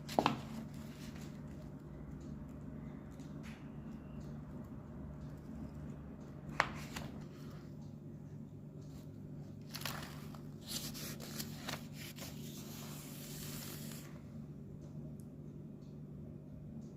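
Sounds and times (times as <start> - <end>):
rustling and scraping handling noise: 0.0 - 1.6, 8.9 - 14.2
steady low hum: 0.0 - 16.9.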